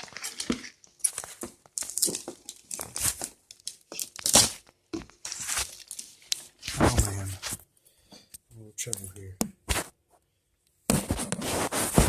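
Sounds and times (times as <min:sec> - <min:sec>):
packaging tearing and crinkling: 0:00.0 - 0:07.3.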